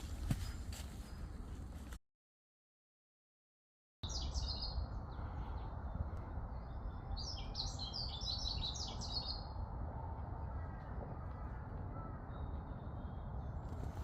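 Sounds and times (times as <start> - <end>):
songbird chirping: 4.0 - 14.0
steady low rumble: 4.8 - 8.0, 9.4 - 14.0.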